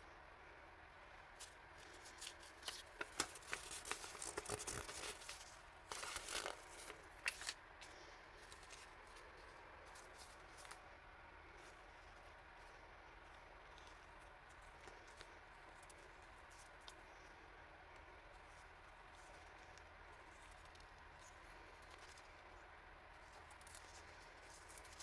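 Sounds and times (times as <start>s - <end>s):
plastic and paper rustling: 1.4s - 10.8s, 23.2s - 25.0s.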